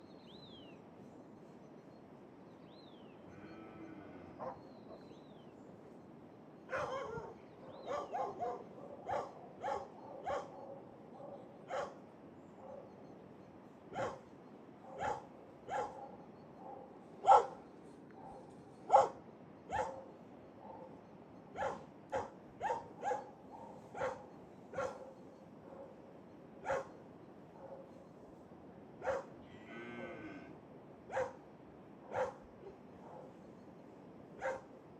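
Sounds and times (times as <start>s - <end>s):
drawn-out bending animal call: 3.2s - 5.2s, 29.1s - 30.6s
dogs barking: 4.4s - 5.2s, 6.7s - 12.0s, 12.6s - 13.1s, 13.9s - 28.0s, 29.0s - 29.4s, 31.1s - 31.4s, 32.1s - 33.4s, 34.4s - 34.7s.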